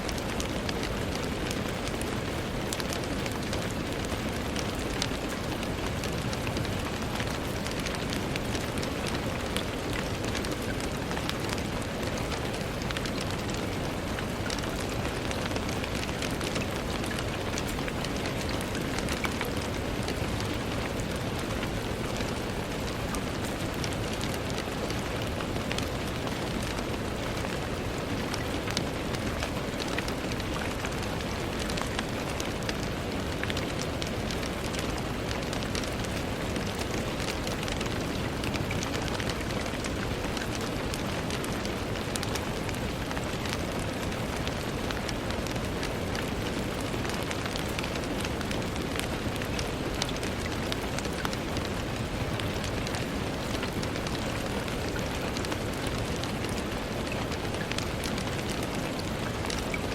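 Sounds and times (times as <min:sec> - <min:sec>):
rain on a window: 0:00.0 - 0:59.9.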